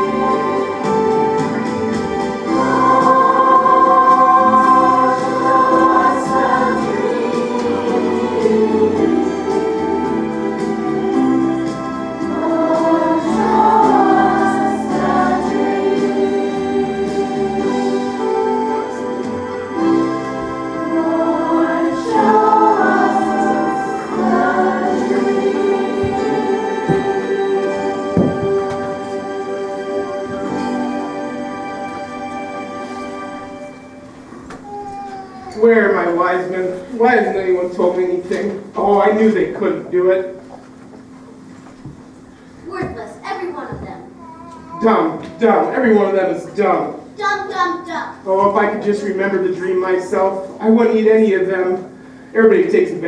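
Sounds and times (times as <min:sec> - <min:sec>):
choir singing with music: 0:00.0 - 0:34.3
instrumental accompaniment: 0:00.0 - 0:35.6.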